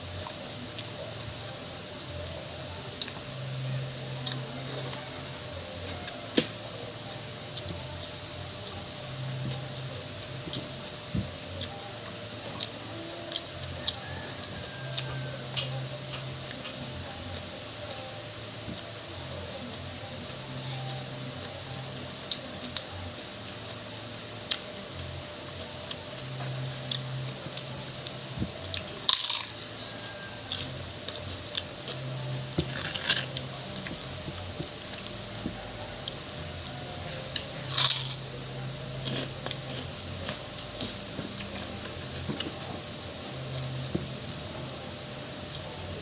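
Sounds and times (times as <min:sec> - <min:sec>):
loud crunches: 0:37.7 - 0:38.2.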